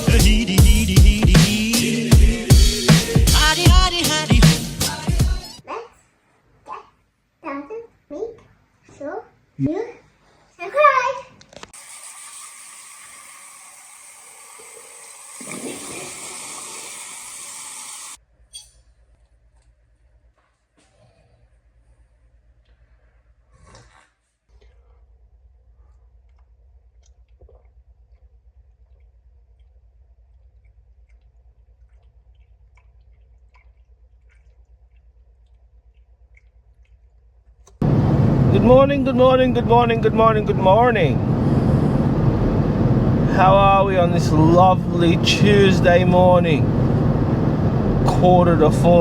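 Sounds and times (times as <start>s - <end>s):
steady low hum: 37.8s - 49.0s.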